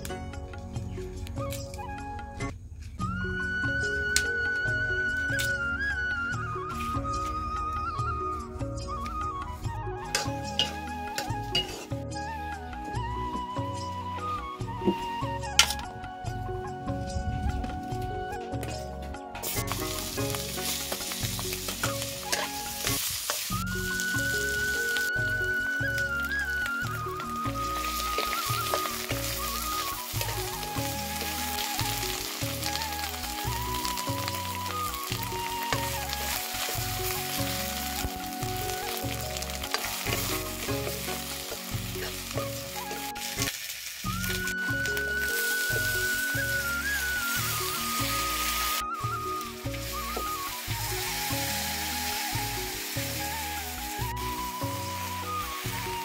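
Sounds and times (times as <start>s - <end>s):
background music: 0.0s - 56.0s
food sizzling in a pan: 10.1s - 12.0s, 19.4s - 56.0s.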